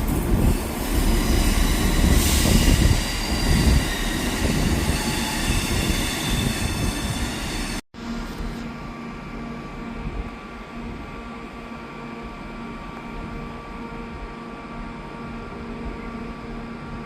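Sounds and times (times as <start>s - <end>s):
train wheels running on rails: 0.0s - 7.8s
wheels squealing on rails: 0.3s - 7.8s.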